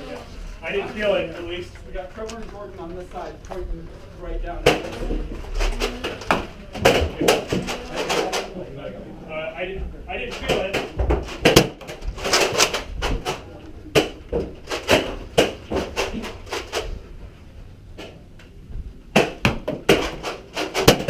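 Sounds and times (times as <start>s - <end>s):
foam dart blaster clicks and knocks: 19.2s - 21.0s.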